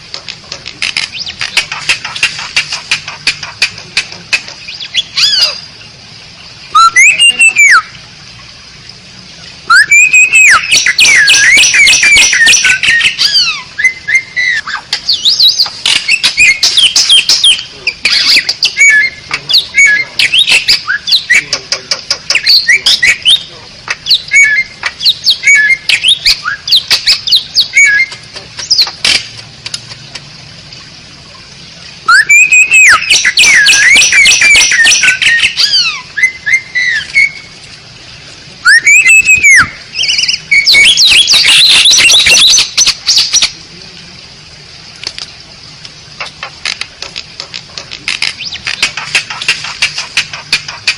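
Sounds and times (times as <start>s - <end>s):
bird clicking and chattering: 0.0s - 5.4s, 10.0s - 13.4s, 14.8s - 30.3s, 32.3s - 35.8s, 45.0s - 50.9s
starling singing whistles: 6.7s - 7.9s, 9.7s - 21.6s, 22.3s - 23.5s, 24.1s - 29.0s, 32.0s - 37.5s, 38.6s - 43.6s.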